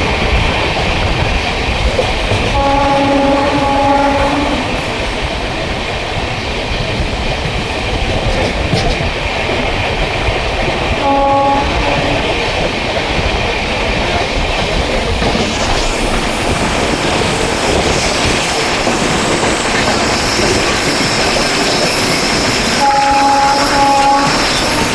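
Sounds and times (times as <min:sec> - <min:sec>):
train horn blast: 0:02.5 - 0:05.0, 0:11.0 - 0:12.6, 0:22.6 - 0:24.9
wheels clattering over rail joints: 0:04.9 - 0:24.9.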